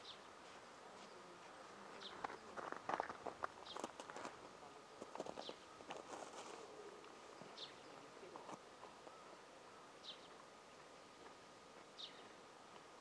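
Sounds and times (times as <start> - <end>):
faint high bird chirps: 9.0 - 10.4, 11.9 - 12.4.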